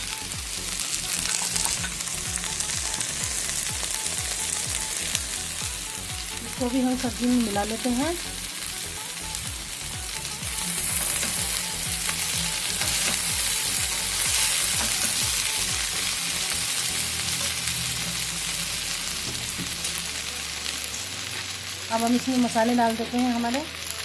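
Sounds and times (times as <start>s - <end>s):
vegetables sizzling in hot oil: 0.0s - 24.0s.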